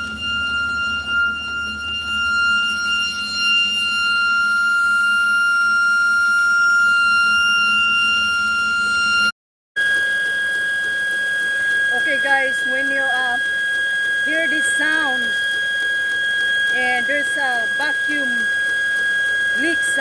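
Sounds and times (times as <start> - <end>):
high-pitched vacuum leak whistle: 0.0 - 20.0.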